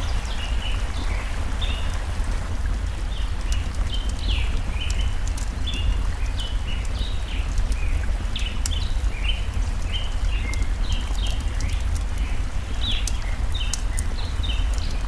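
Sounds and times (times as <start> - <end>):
rushing stream water: 0.0 - 15.0
wood fire crackling: 0.0 - 15.0.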